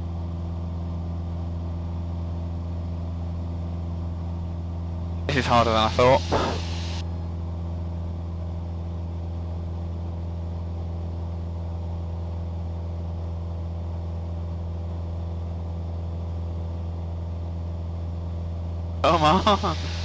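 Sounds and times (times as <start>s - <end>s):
airplane engine and propeller droning: 0.0s - 20.0s.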